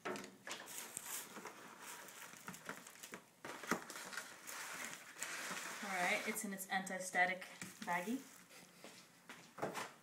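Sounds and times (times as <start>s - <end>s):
cardboard box and plastic rustling: 0.1s - 6.6s.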